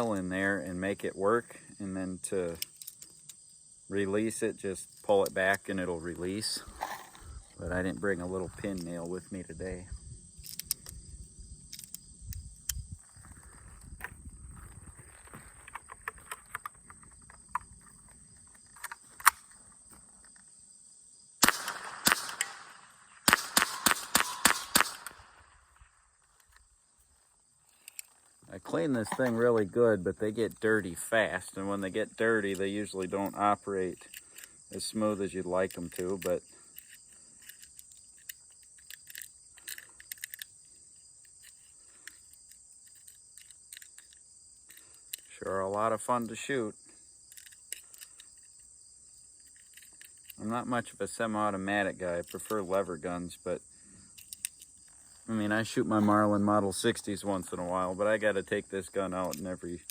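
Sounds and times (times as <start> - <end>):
insect chorus: 0.0 - 59.9
faint handling clicks: 2.5 - 3.4, 10.4 - 11.0, 31.8 - 46.5, 47.3 - 48.7, 54.1 - 55.0, 59.1 - 59.9
rifle shots: 21.4 - 26.0.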